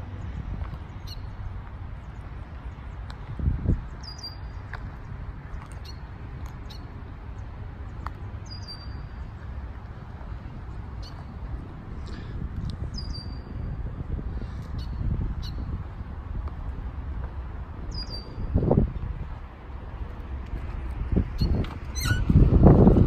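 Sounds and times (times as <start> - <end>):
low outdoor rumble: 0.0 - 23.0
birds chirping: 3.7 - 9.6, 12.9 - 13.5, 17.9 - 18.8.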